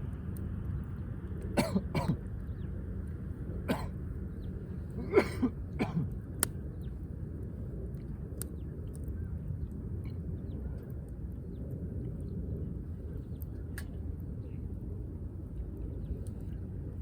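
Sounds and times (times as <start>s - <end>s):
steady low rumble: 0.0s - 17.0s
person clearing throat: 1.6s - 2.2s, 3.7s - 3.9s, 5.0s - 6.1s
person coughing: 1.6s - 2.2s, 3.7s - 3.9s, 5.0s - 6.1s.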